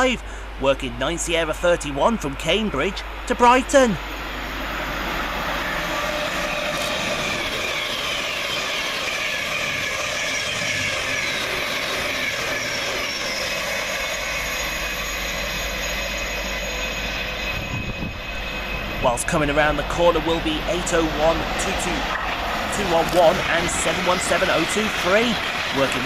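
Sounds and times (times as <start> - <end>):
train wheels rushing on rail: 0.0 - 26.0
train whining tones: 0.0 - 26.0.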